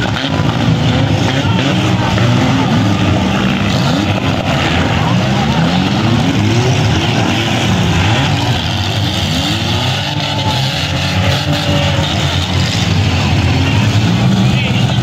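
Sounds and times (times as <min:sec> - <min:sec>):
car engines revving: 0:00.0 - 0:15.0
loud steady din: 0:00.0 - 0:15.0.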